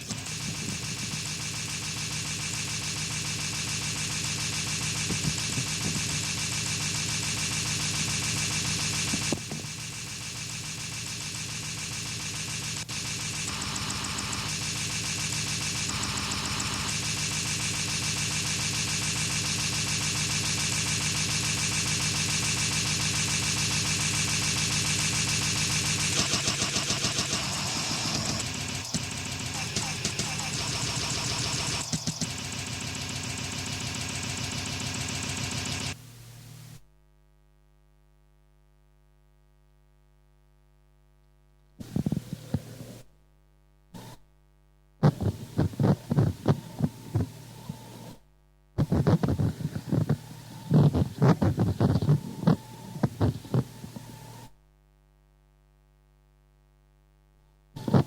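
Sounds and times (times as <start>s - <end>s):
harsh distorted noise music: 9.8s - 32.7s, 48.8s - 54.1s.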